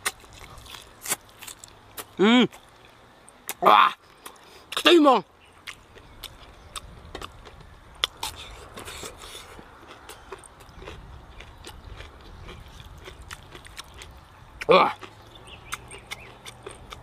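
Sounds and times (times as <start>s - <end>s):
person chewing crispy food: 0.0s - 3.0s, 5.6s - 17.0s
mouth clicks: 12.6s - 17.0s.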